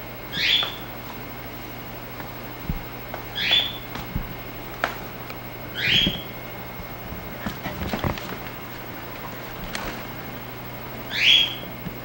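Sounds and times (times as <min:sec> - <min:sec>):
bird squawking: 0:00.3 - 0:00.9, 0:03.3 - 0:03.9, 0:05.7 - 0:06.3, 0:11.1 - 0:11.7
soft low thumps: 0:02.5 - 0:03.2, 0:03.9 - 0:04.6.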